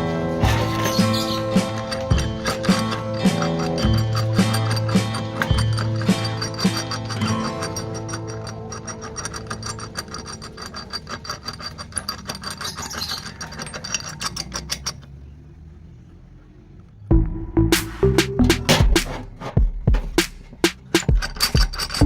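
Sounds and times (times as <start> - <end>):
loud music: 0.0 - 1.7, 17.1 - 20.8
hand tool scraping workpiece: 0.0 - 15.4, 18.6 - 22.0.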